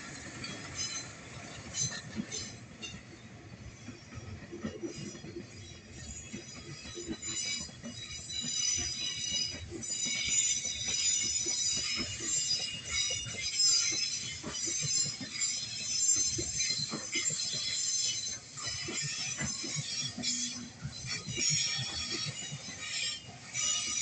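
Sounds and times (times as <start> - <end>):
train wheels squealing on rails: 0.0 - 24.0.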